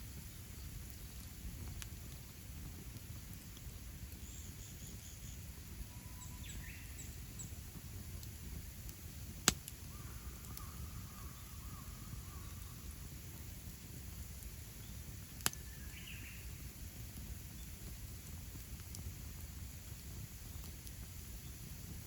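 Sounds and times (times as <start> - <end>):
campfire burning: 0.0 - 22.0
sharp fire pop: 9.3 - 9.8, 15.4 - 15.6.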